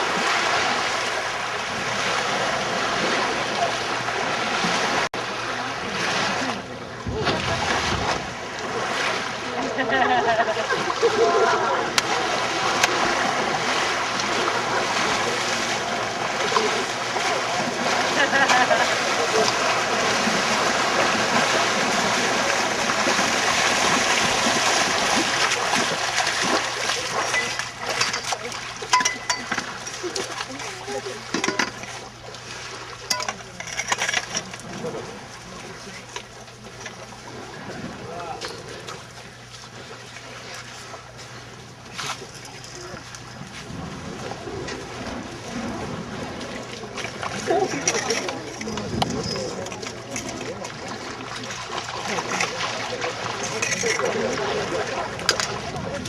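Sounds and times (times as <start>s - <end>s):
rushing water: 0.0s - 56.0s
wind buffeting microphone: 55.2s - 56.0s.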